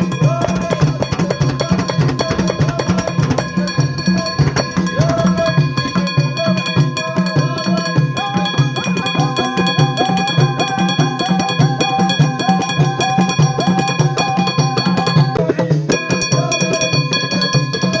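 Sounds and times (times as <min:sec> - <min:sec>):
drums keeping a steady beat: 0:00.0 - 0:18.0
fast repeated melody notes: 0:00.0 - 0:18.0.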